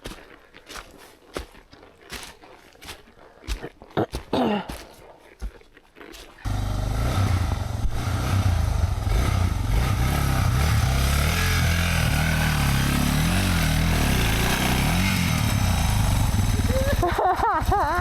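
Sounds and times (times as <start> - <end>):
motorcycle engine at low revs: 6.4 - 18.0.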